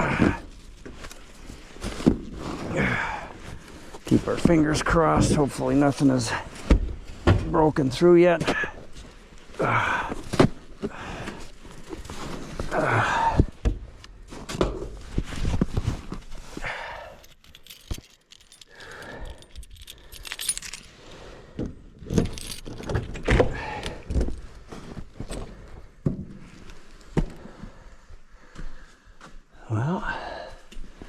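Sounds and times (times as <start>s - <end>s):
keys jangling: 16.7s - 21.3s, 22.0s - 24.0s.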